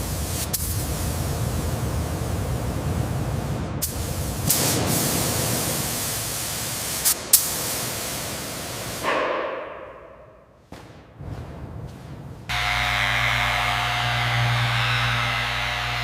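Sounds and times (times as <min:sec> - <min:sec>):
loud spraying hiss: 0:00.0 - 0:09.1.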